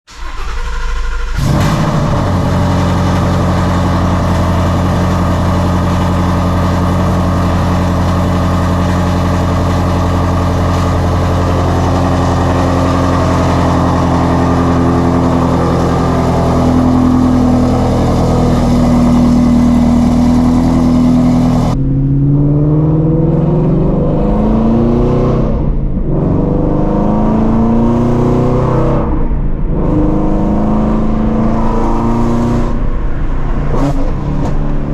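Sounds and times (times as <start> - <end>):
car engine idling: 0.1 - 21.9
car engine revving: 0.1 - 34.9.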